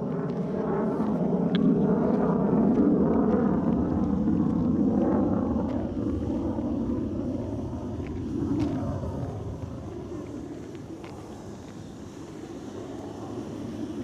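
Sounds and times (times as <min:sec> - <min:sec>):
low engine-like rumble: 0:00.0 - 0:14.0.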